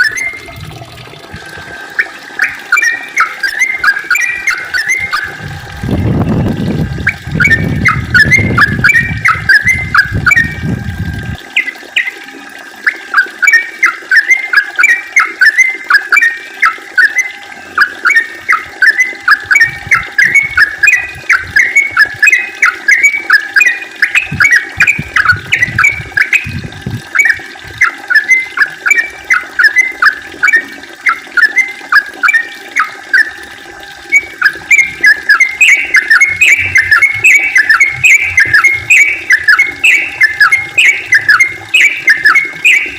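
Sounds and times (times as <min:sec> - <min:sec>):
bird chirping song: 0:07.1 - 0:10.6, 0:12.9 - 0:26.6, 0:34.2 - 0:42.9.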